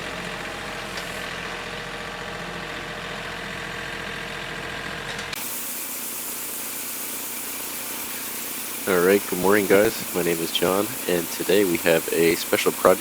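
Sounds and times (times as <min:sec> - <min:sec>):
engine running steadily: 0:00.0 - 0:13.0
steady hiss: 0:05.4 - 0:13.0.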